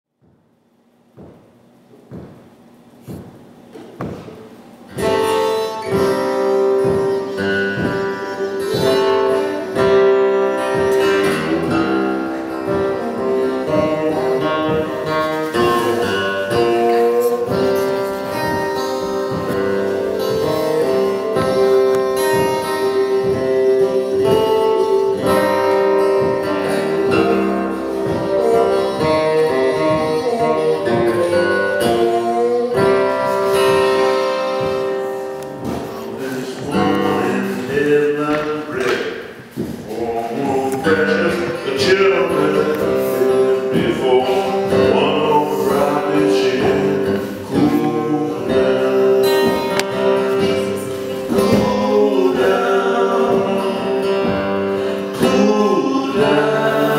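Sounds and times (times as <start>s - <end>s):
acoustic guitar picking: 0.1s - 56.9s
harmonica notes: 4.0s - 56.9s.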